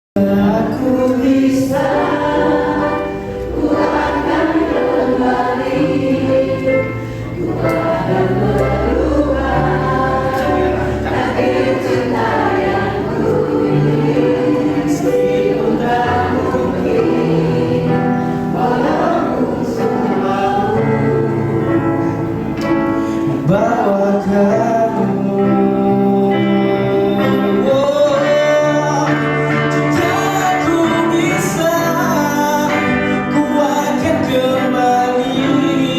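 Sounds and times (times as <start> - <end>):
choir singing: 0.2 - 35.9.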